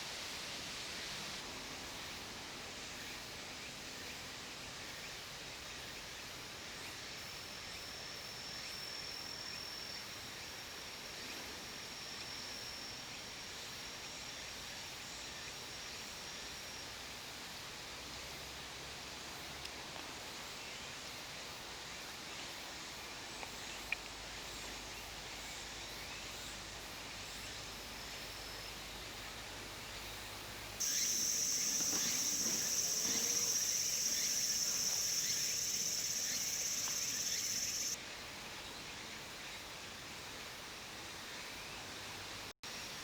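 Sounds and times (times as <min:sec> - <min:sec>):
faint insect chirps: 0:23.3 - 0:38.0
loud high-pitched insect buzz: 0:30.8 - 0:38.0.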